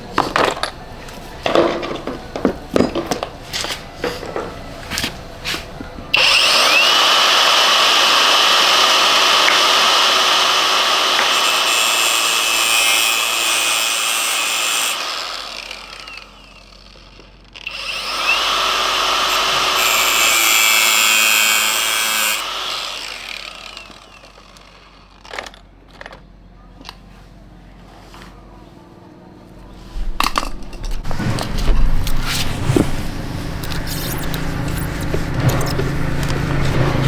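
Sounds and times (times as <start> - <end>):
handheld power tool running: 6.1 - 25.6, 31.0 - 37.0.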